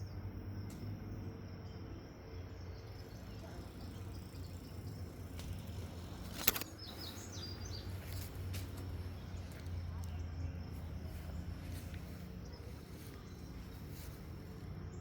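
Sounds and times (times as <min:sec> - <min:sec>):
low background rumble: 0:00.0 - 0:15.0
sharp click: 0:06.2 - 0:07.1.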